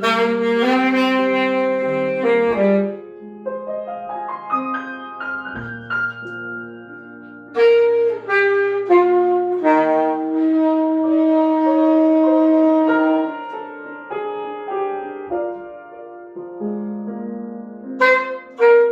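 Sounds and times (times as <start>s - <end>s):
saxophone phrase: 0.0s - 3.0s, 7.5s - 13.7s, 18.0s - 18.9s
jazz piano: 0.0s - 18.9s.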